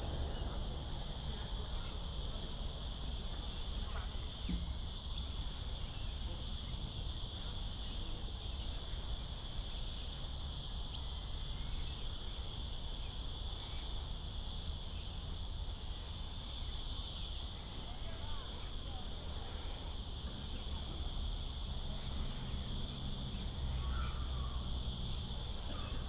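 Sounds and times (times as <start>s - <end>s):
low steady rumble: 0.0s - 3.3s
insects chirring: 0.0s - 26.0s.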